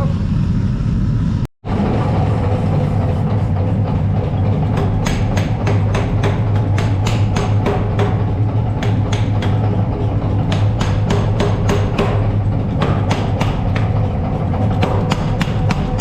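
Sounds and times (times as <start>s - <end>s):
low hum: 0.0s - 16.0s
hammer blows on anvil: 4.4s - 16.0s.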